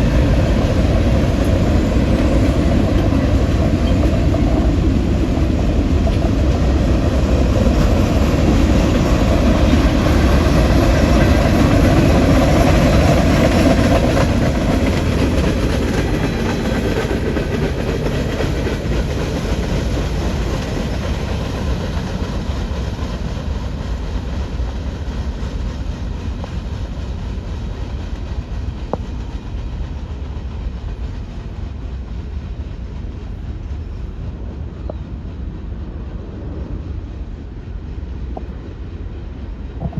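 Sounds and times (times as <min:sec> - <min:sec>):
train rumbling past on rails: 0:00.0 - 0:39.9.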